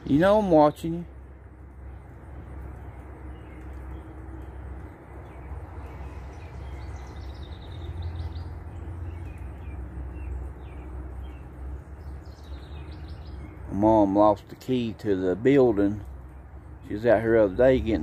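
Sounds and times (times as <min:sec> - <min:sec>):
low outdoor rumble: 0:00.0 - 0:18.0
bird chirps: 0:01.9 - 0:14.4.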